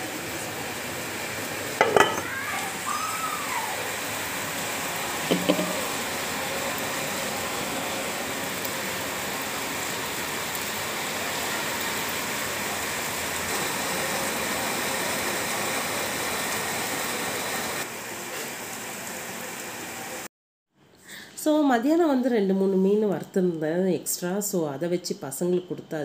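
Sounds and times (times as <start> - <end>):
heavy rain falling: 0.1 - 20.2.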